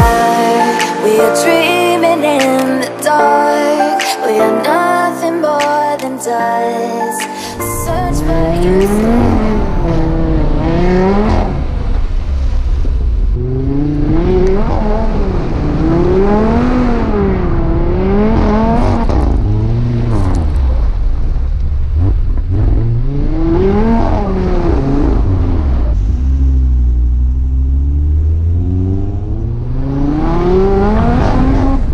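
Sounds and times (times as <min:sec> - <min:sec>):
car engine revving: 0:07.8 - 0:31.9.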